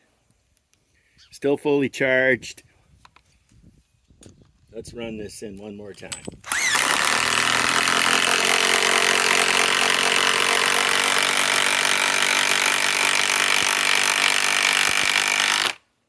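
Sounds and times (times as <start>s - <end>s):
impact wrench running: 6.2s - 15.8s.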